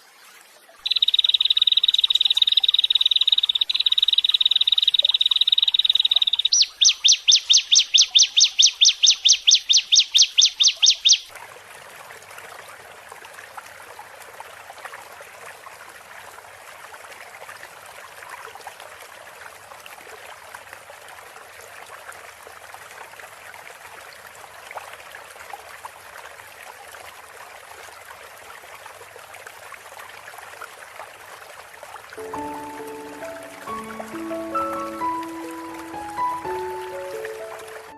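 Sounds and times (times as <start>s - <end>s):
trickling water: 0.0s - 37.9s
bird chirping: 0.8s - 11.3s, 32.2s - 37.9s
bird trilling: 0.8s - 11.3s, 32.2s - 37.9s.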